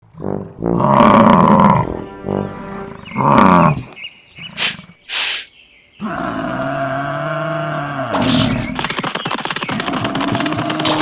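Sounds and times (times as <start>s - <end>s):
music: 1.5s - 3.8s
animal bellowing: 2.9s - 4.9s, 6.0s - 9.1s.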